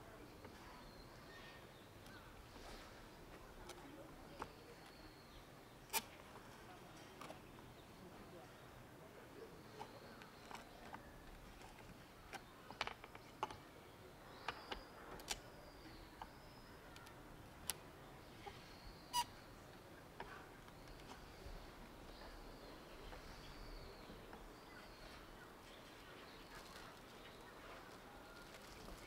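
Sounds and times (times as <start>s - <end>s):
short sharp bird chirps: 18.6s - 19.4s.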